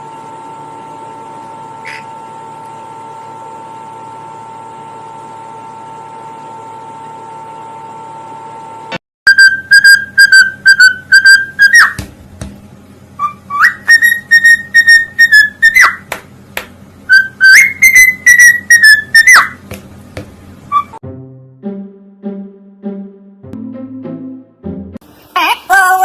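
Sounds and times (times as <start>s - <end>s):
parrot whistling: 9.3s - 12.0s, 13.2s - 16.1s, 17.1s - 19.6s, 20.7s - 21.0s.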